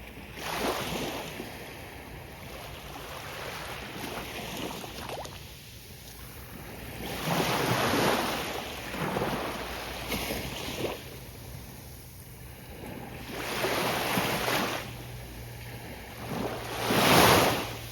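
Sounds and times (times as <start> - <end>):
ocean waves breaking on beach: 0.0 - 17.9.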